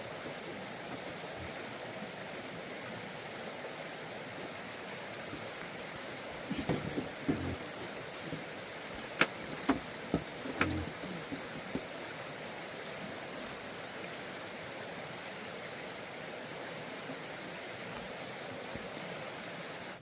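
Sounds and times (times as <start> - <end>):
sharp knocks: 6.5 - 8.0, 9.0 - 11.9.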